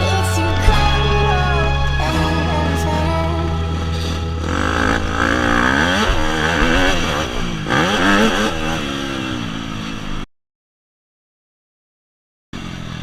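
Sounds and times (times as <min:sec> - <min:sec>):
dirt bike engine revving: 0:00.0 - 0:10.1.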